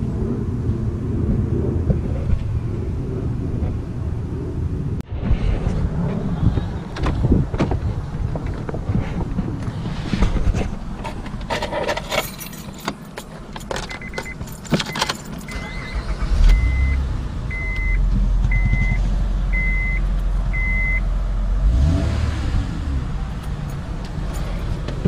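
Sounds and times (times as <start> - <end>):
car engine starting and running: 0.0 - 25.0
keys jangling: 11.4 - 15.6, 23.4 - 24.8
car warning chime beeping: 13.9 - 21.0.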